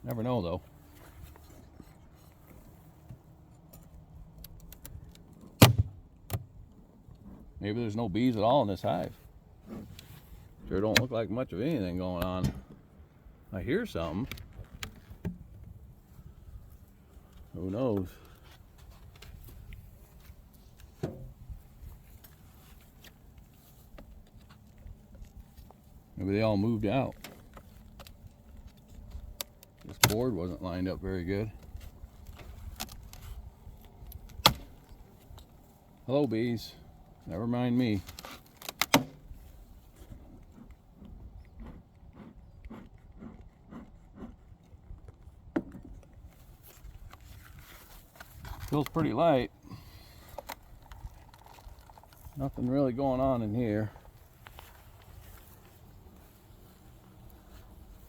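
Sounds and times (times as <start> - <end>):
soft footsteps: 53.8 - 58.0.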